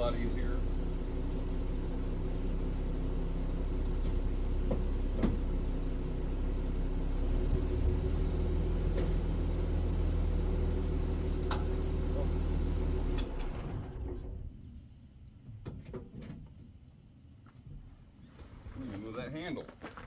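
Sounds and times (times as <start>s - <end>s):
pickup engine idling: 0.0s - 14.8s.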